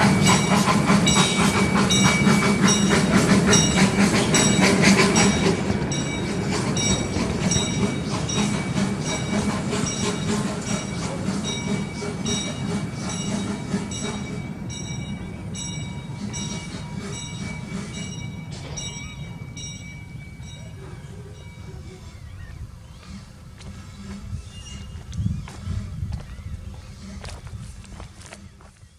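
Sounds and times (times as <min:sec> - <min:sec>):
train cars clicking over rail joints: 0:00.0 - 0:21.1.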